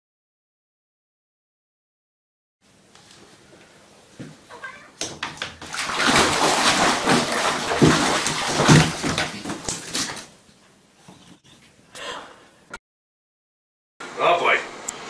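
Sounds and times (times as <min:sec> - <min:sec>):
water splashing in a bathtub: 0:04.6 - 0:10.4.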